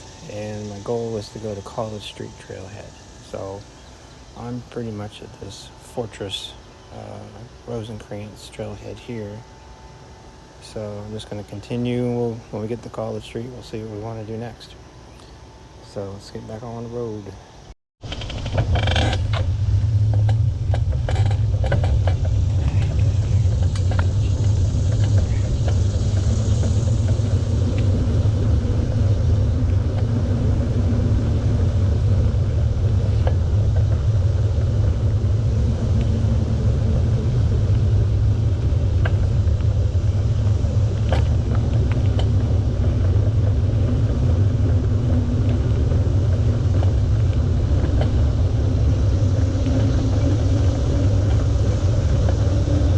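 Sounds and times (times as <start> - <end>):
road noise: 0.0 - 52.9
wind rumble on microphone: 18.0 - 52.9.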